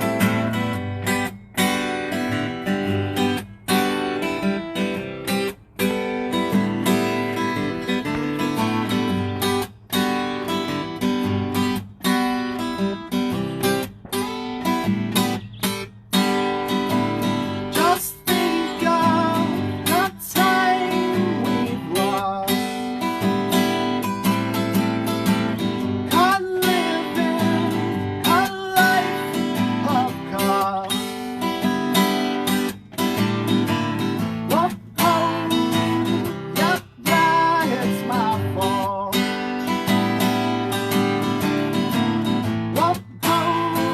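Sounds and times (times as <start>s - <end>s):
acoustic guitar strumming: 0.0s - 43.9s
man singing: 16.9s - 23.7s, 25.6s - 32.2s, 34.2s - 40.0s, 41.8s - 43.9s.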